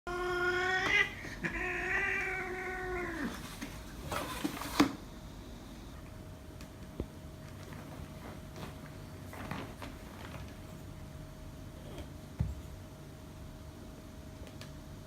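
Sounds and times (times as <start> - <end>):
cat yowling: 0.1 - 3.4.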